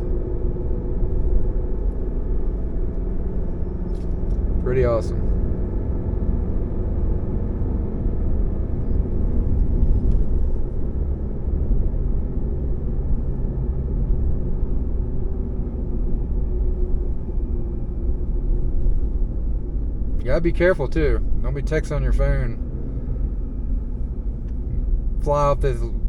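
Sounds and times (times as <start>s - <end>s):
truck driving: 18.8s - 26.0s.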